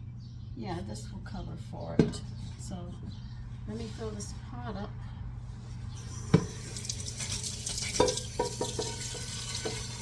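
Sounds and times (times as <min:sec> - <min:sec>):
tap running water into a pot: 0:06.1 - 0:10.0.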